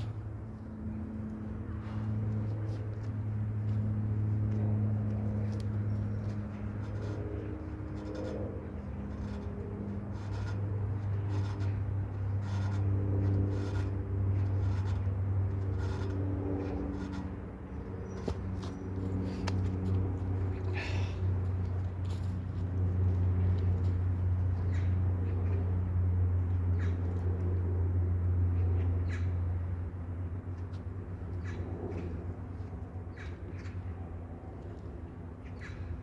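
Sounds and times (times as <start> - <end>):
low motor hum: 0.0 - 36.0.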